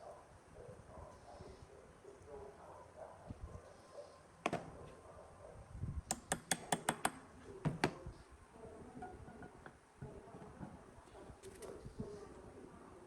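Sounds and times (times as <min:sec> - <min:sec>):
sharp taps on hard surface: 0:06.1 - 0:07.2.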